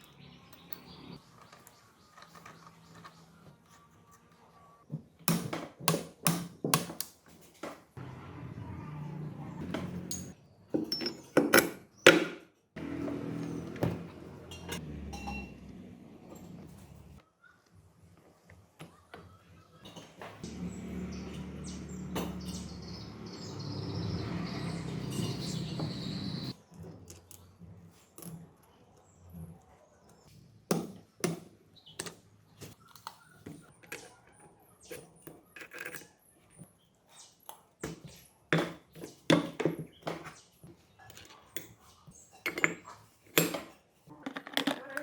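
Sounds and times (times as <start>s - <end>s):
small motor running: 20.4s - 26.5s.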